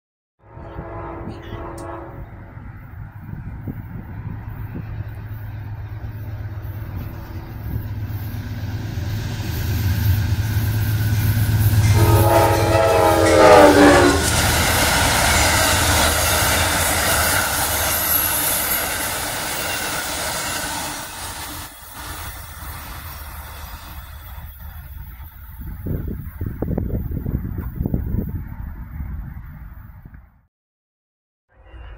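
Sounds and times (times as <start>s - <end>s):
locomotive horn chord: 0.4s - 2.4s, 11.7s - 14.6s
diesel locomotive engine drone: 0.4s - 30.2s, 31.5s - 31.9s
train cars rushing past: 0.5s - 29.6s.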